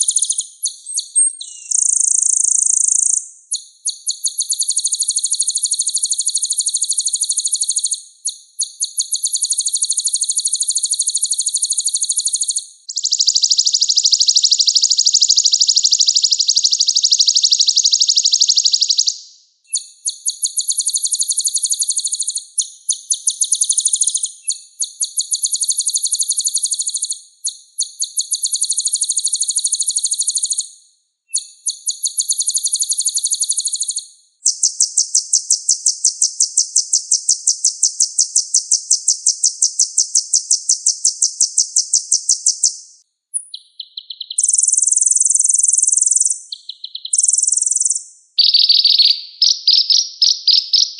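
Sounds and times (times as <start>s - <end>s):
bird buzzy trills: 44.4s - 49.8s.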